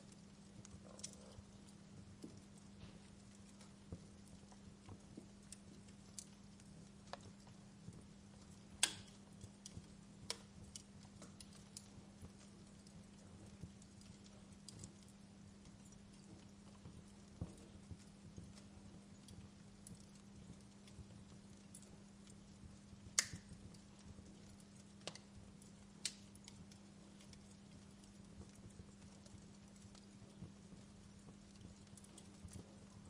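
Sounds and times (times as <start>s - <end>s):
faint low hum: 0.0s - 33.0s
wood fire crackling: 0.0s - 33.0s
sharp pops of fire: 8.6s - 11.4s, 23.1s - 23.8s.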